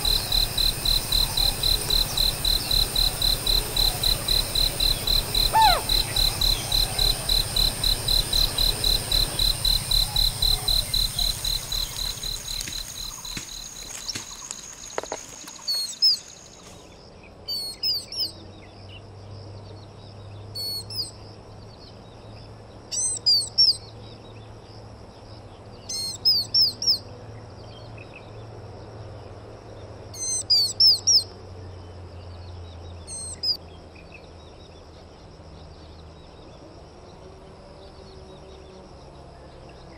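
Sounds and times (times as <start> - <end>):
bird chirping: 0.0 - 18.4.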